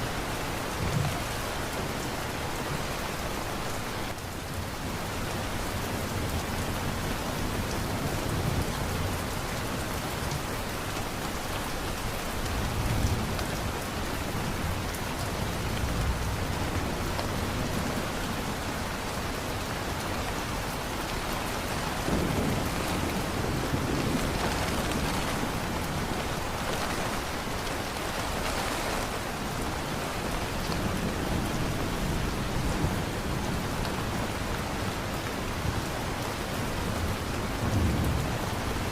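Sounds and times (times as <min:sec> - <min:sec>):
heavy rain: 0:00.0 - 0:38.9
low thunder rumbling: 0:21.8 - 0:28.4.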